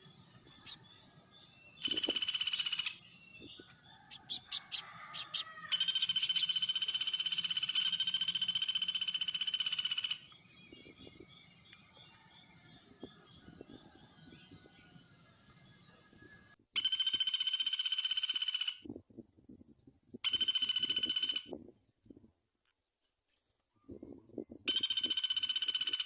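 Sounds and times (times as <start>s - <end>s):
high-pitched animal trill: 4.1s - 6.6s.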